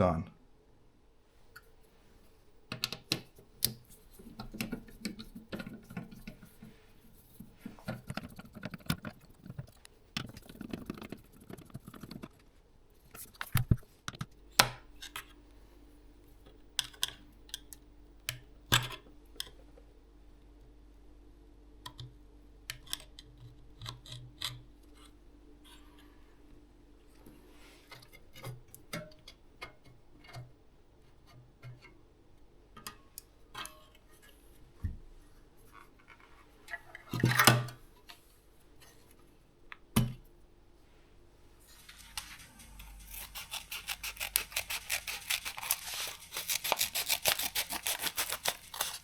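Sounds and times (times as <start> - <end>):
faint steady hum: 0.0 - 49.0
small tools clicking and tapping: 16.8 - 19.6.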